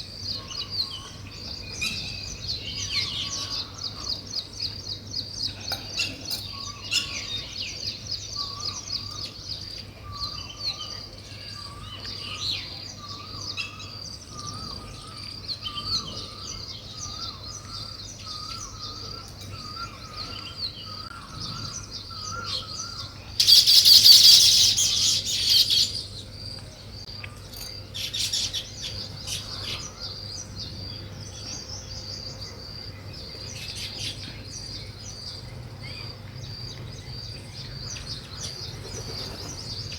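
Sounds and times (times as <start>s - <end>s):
birds chirping: 0.0s - 39.9s
lower warbling bird call: 13.0s - 26.2s.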